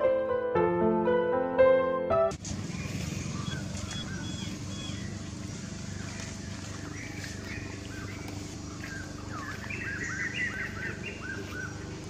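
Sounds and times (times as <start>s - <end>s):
steady low hum: 2.3s - 12.0s
birds chirping: 2.4s - 12.0s.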